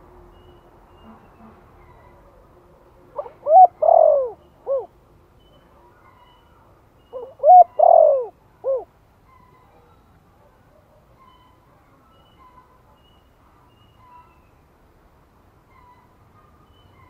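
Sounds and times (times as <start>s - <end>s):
dove cooing: 3.2s - 4.9s, 7.2s - 8.9s.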